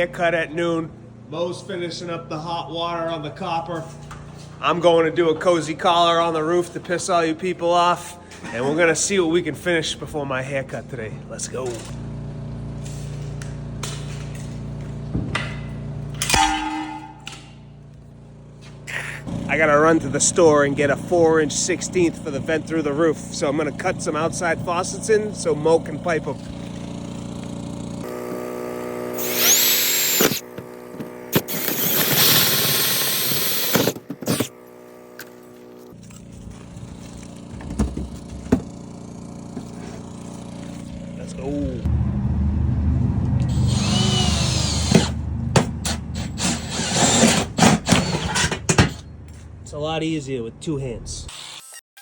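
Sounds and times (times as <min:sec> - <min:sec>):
loud metallic clang: 0:16.2 - 0:17.7
power drill whining: 0:29.1 - 0:34.6, 0:43.4 - 0:45.2, 0:46.1 - 0:48.6.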